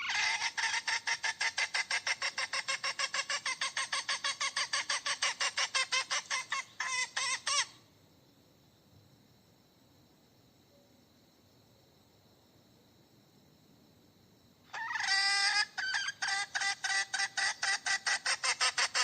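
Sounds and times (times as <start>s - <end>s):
hen cackling: 0.0s - 7.8s, 14.7s - 19.0s.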